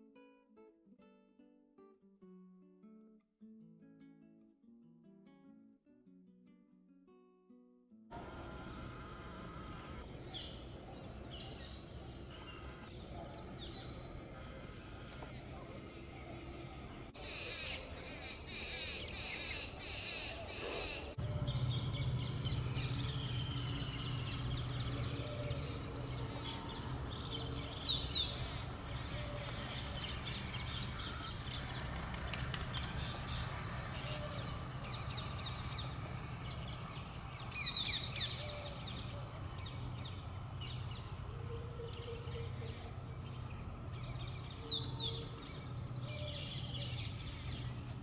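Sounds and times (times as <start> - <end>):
steady low hum: 8.1 - 17.2.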